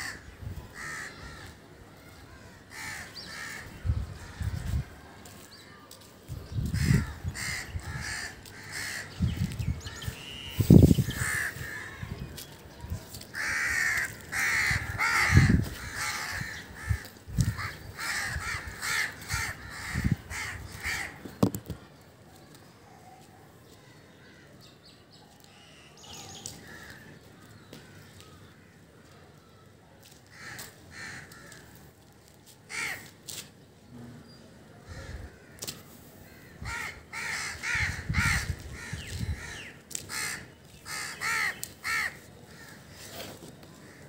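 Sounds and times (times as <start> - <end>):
harsh bird calls: 6.5 - 21.9, 33.8 - 44.0
hands handling microphone thumps: 21.2 - 21.8.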